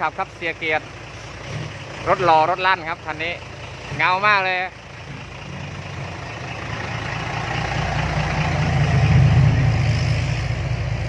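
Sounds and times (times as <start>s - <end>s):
dump truck engine with loud exhaust: 0.0s - 11.0s.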